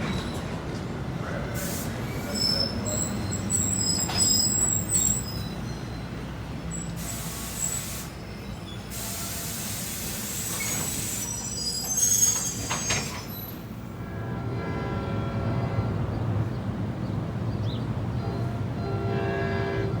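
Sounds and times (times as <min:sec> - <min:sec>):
train wheel squeal: 0:02.1 - 0:13.8.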